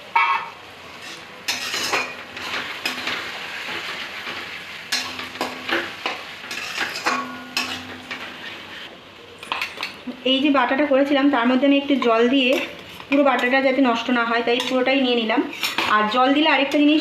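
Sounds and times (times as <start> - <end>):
food sizzling in hot oil: 0.0 - 17.0
spoon scraping a pan: 0.2 - 10.0, 11.9 - 13.8, 14.5 - 16.0.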